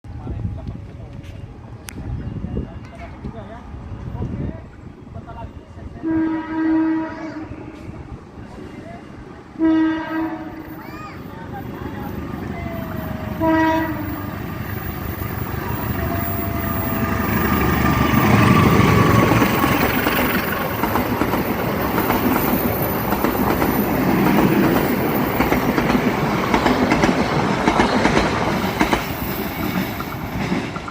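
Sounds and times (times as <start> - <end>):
train horn blast: 6.0 - 7.8, 9.6 - 10.7, 13.3 - 14.4
locomotive rumble: 7.5 - 30.9
train wheels clattering: 14.6 - 30.9.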